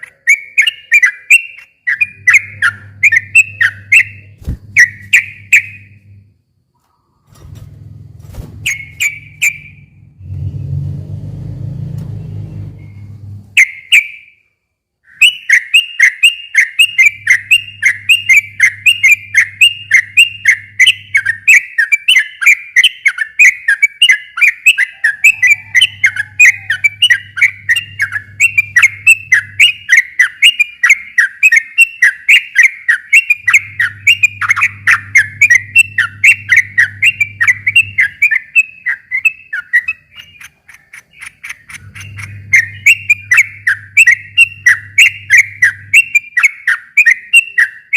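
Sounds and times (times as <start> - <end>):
bulbul chirping: 0.0 - 6.2, 8.6 - 10.1, 15.2 - 47.9
faint low hum: 1.8 - 13.8, 24.9 - 31.3, 33.2 - 46.4.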